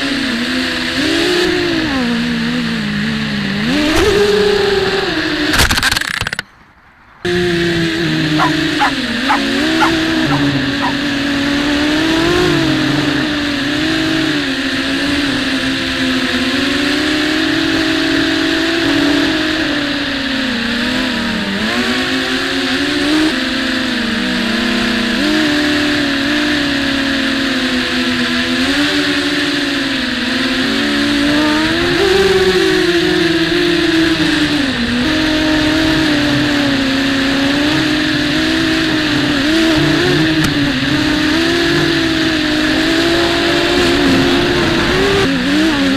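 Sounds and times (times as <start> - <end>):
drone motors whining: 7.3 - 13.8.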